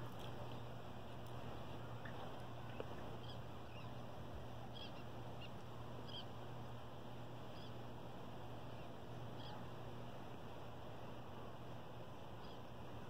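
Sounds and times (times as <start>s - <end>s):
low hum and hiss: 0.0s - 13.0s
faint short bird calls: 9.4s - 9.6s.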